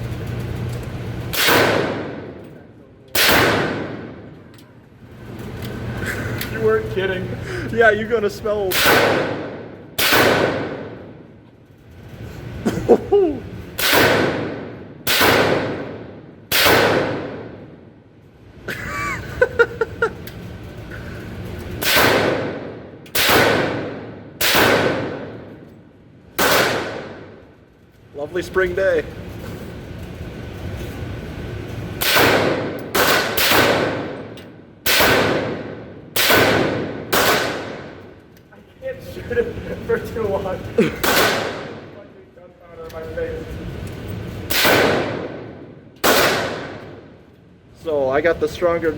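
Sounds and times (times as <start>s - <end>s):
suppressed rifle shots: 1.3s - 2.4s, 3.1s - 4.3s, 8.7s - 11.0s, 13.8s - 17.6s, 21.8s - 25.5s, 26.4s - 27.4s, 32.0s - 38.0s, 41.0s - 41.9s, 44.5s - 47.1s.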